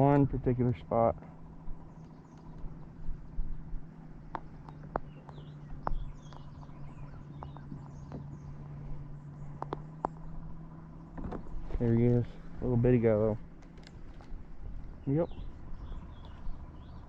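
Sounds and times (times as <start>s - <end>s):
steady low hum: 0.0s - 17.0s
faint bird chirps: 4.4s - 12.5s, 14.8s - 17.0s.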